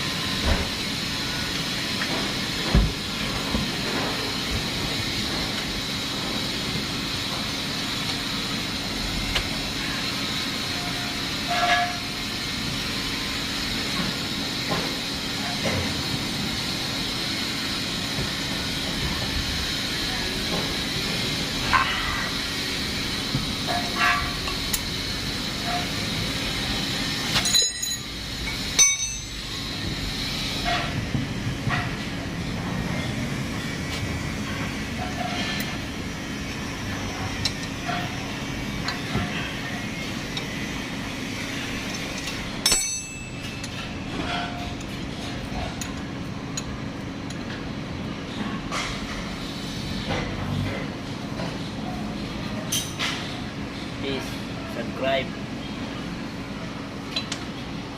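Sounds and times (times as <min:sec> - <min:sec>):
steady hum with high whine: 0:00.0 - 0:57.9
metal tools clinking: 0:27.4 - 0:29.4, 0:42.0 - 0:44.6.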